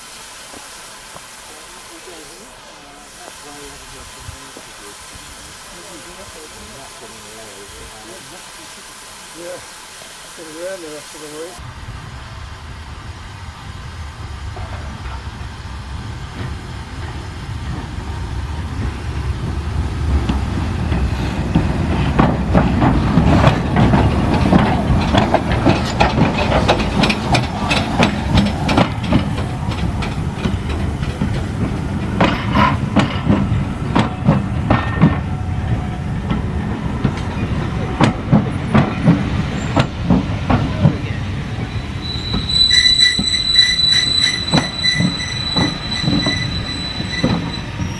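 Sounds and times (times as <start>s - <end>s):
train wheels clattering over rail joints: 14.4s - 47.9s.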